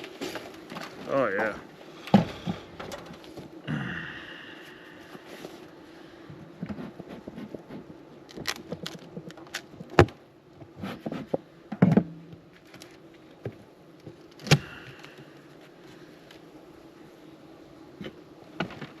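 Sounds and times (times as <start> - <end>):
honeybees humming: 0.0 - 19.0
hive tool clicks and wooden knocks: 8.3 - 10.2.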